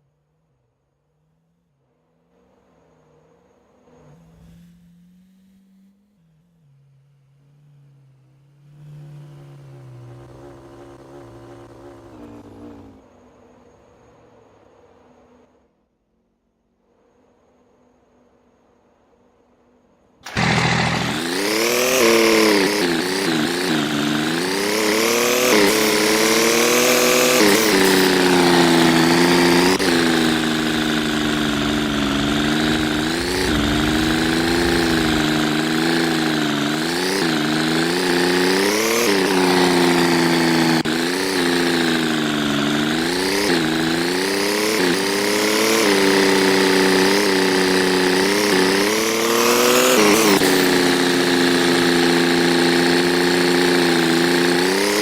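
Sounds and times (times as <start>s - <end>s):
engine revving: 4.0s - 13.1s, 20.2s - 55.0s.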